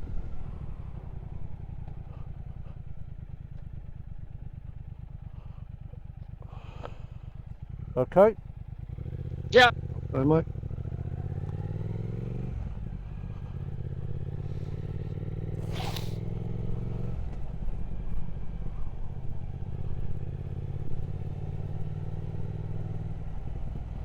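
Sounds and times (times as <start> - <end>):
motorcycle engine running: 0.0 - 24.0
brief rushing noise: 15.6 - 16.2.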